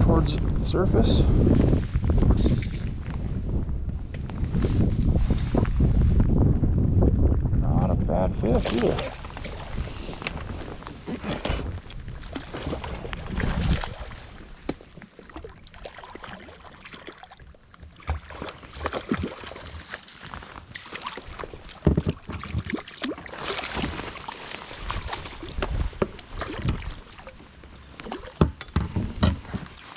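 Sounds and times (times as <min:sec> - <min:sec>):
water sloshing against boat: 0:08.6 - 0:29.9
knocks and rustles of handling: 0:25.5 - 0:29.9.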